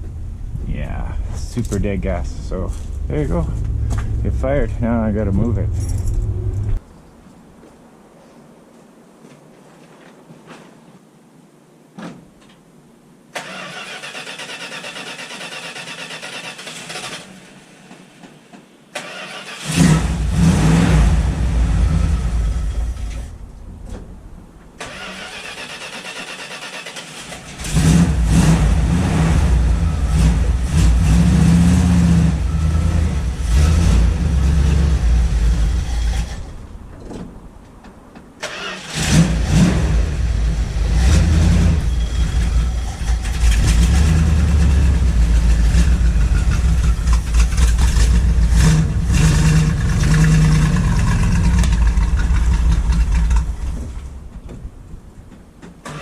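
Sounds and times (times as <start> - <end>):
car engine starting: 0.0 - 6.8, 13.3 - 56.0
engine running rough: 0.0 - 6.8, 27.2 - 36.8, 38.9 - 54.8.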